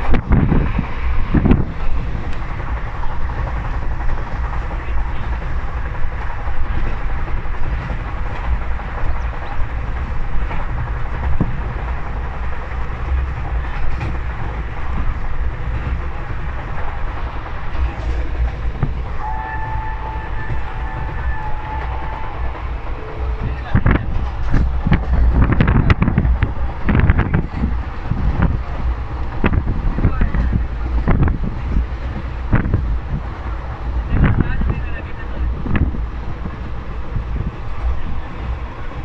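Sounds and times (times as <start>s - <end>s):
moving vehicle rumbling: 0.0s - 39.0s
vehicle horn: 19.2s - 23.5s.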